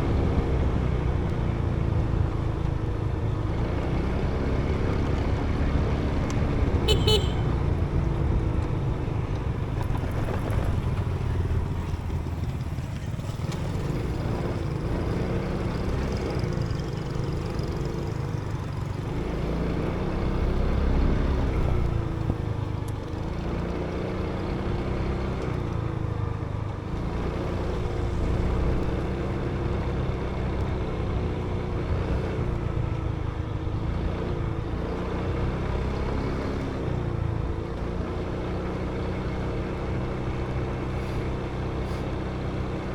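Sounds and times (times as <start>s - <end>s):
motorbike engine: 3.1s - 34.9s
horn toot: 6.8s - 7.6s
wind rumble on microphone: 7.9s - 12.8s.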